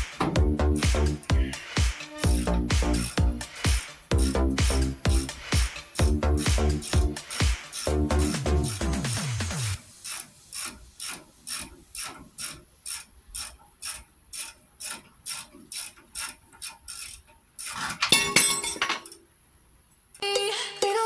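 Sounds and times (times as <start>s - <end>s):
rattling burst: 0.0s - 11.6s
ratchet wrench clicking: 0.0s - 19.3s.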